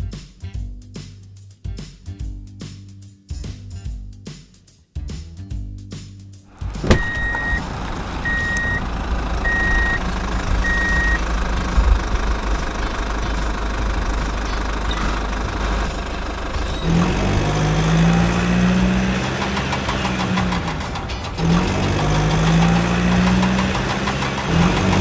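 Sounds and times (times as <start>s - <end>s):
low motor hum: 6.6s - 19.6s
high beep: 6.9s - 7.6s, 8.3s - 8.8s, 9.5s - 10.0s, 10.6s - 11.2s.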